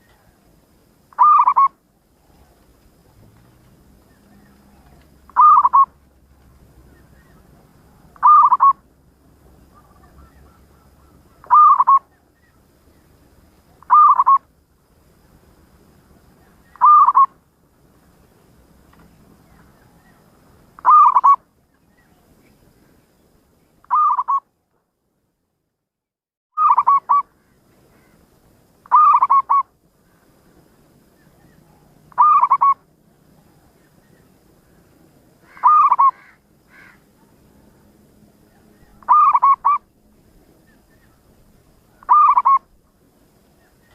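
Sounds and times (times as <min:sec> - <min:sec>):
dove cooing: 0:01.1 - 0:02.6, 0:04.0 - 0:06.0, 0:06.8 - 0:08.9, 0:09.6 - 0:12.2, 0:13.7 - 0:14.5, 0:16.4 - 0:17.3, 0:20.8 - 0:21.4, 0:23.9 - 0:24.4, 0:26.6 - 0:27.3, 0:28.8 - 0:29.7, 0:31.4 - 0:32.8, 0:35.4 - 0:37.9, 0:38.5 - 0:39.9, 0:41.9 - 0:42.8.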